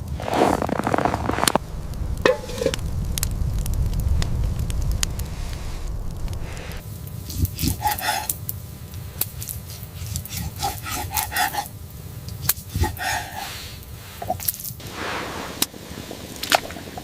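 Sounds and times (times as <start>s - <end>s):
rasping scraping strokes: 2.2s - 2.8s, 6.4s - 8.4s, 9.6s - 11.7s.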